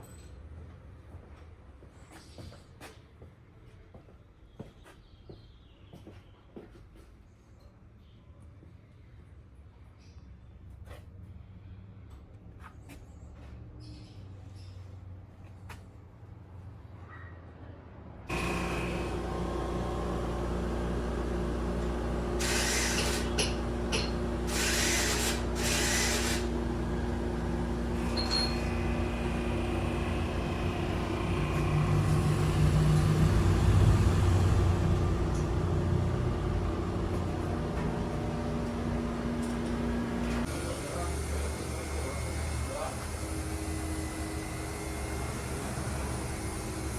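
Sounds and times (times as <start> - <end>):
machining equipment humming: 18.3 - 46.9.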